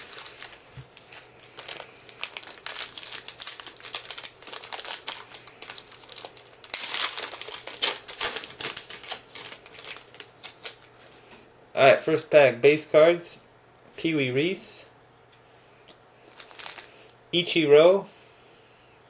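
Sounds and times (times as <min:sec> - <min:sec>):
card pack wrapper tearing and crinkling: 0:00.0 - 0:11.0, 0:16.3 - 0:16.9.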